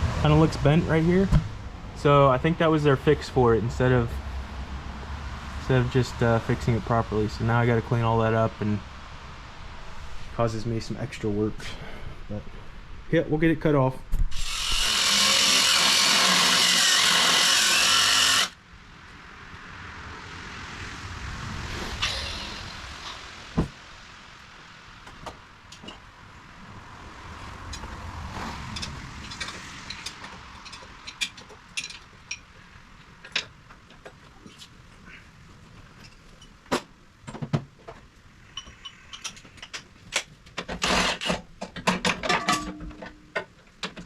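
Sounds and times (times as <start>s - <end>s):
cut-off wheel cutting steel: 14.3s - 18.6s, 21.7s - 23.3s.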